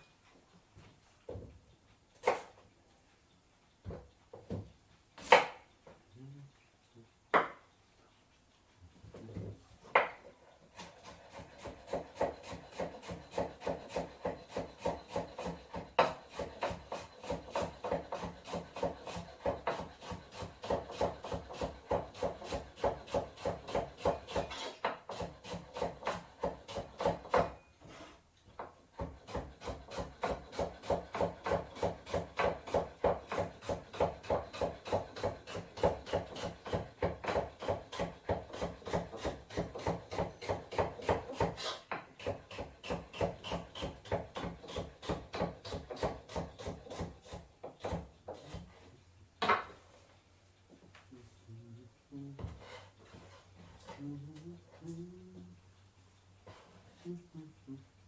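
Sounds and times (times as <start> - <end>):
scraping on wooden board: 10.0 - 28.2, 29.0 - 48.9, 52.4 - 54.0.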